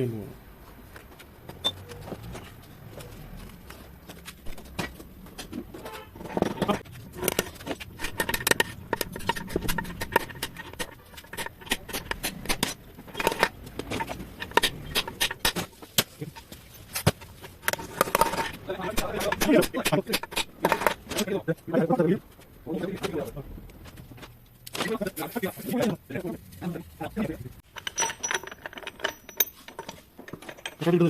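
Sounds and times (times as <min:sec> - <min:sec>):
metal tools tapping and clicking: 0:04.1 - 0:21.6, 0:27.6 - 0:31.0.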